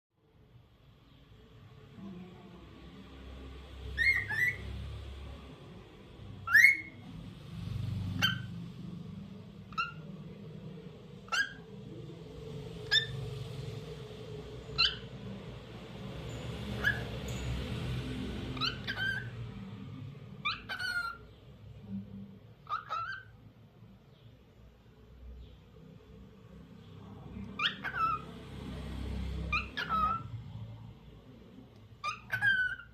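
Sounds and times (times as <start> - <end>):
cockatiel whistled chirps: 6.5 - 6.9, 16.8 - 17.1.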